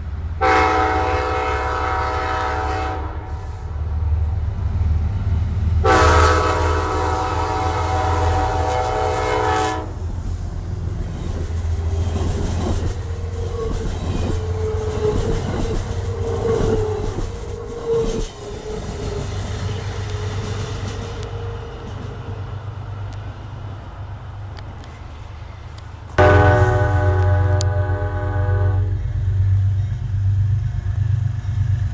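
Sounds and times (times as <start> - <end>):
diesel locomotive engine rumbling: 0.0 - 31.9
multi-tone train horn: 0.4 - 3.7, 5.8 - 10.1, 14.4 - 18.2, 26.2 - 29.2
train wheel clatter: 10.2 - 23.3
wheel squeal: 11.1 - 22.4.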